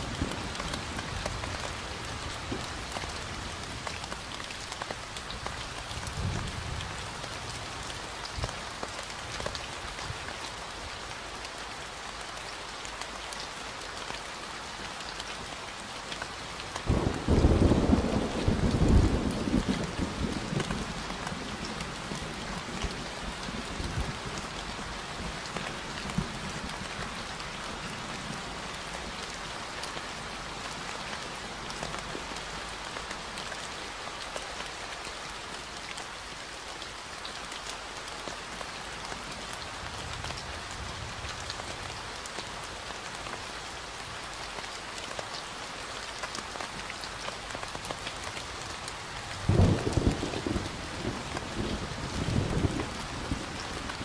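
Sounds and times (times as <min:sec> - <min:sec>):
steady rain falling: 0:00.0 - 0:54.0
thunder rumbling: 0:16.9 - 0:20.8, 0:49.5 - 0:54.0.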